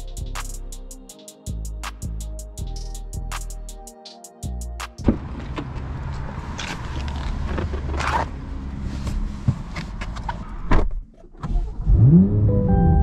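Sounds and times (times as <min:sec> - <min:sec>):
car engine starting and idling: 0:05.0 - 0:13.0.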